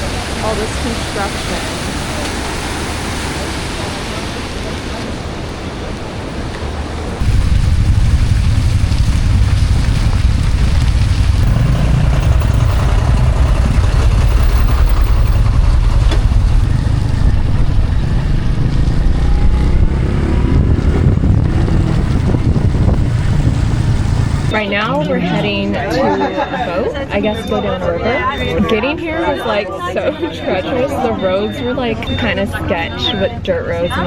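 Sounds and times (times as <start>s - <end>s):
wind rumble on microphone: 3.8s - 24.6s
motorbike engine running: 7.2s - 24.5s.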